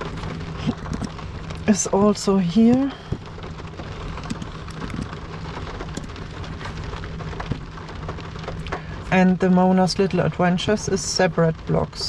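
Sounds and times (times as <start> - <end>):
rain on a car roof: 0.0 - 12.0.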